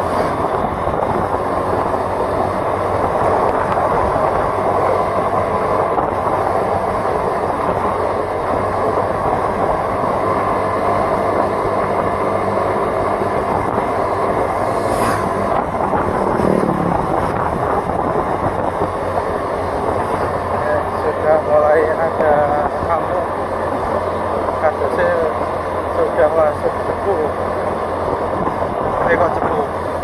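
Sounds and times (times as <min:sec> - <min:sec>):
road and wind noise: 0:00.0 - 0:30.0
vehicle engine running: 0:00.0 - 0:30.0
passing swish: 0:14.6 - 0:17.3.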